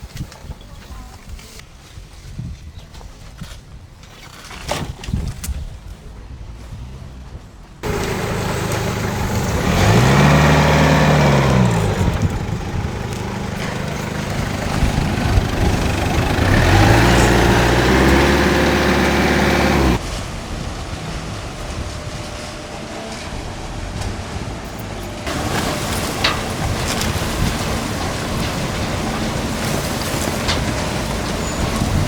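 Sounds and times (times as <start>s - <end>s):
vehicle engine revving: 7.8s - 20.0s, 24.4s - 32.0s.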